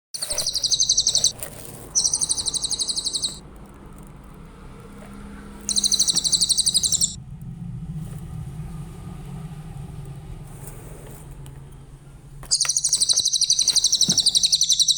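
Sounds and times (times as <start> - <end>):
bird trilling: 0.2 - 3.4, 5.7 - 7.2, 12.5 - 14.9.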